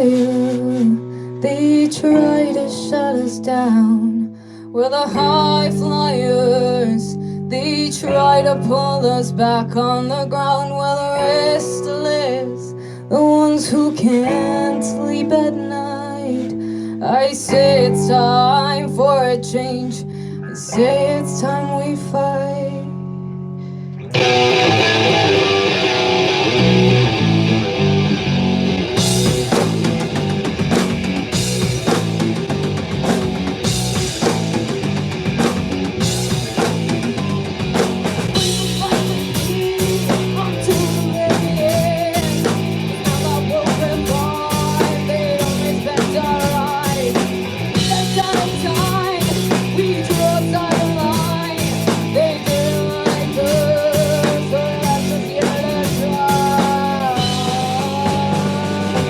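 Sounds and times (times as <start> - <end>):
rock band playing live: 0.0 - 1.2, 24.1 - 59.0.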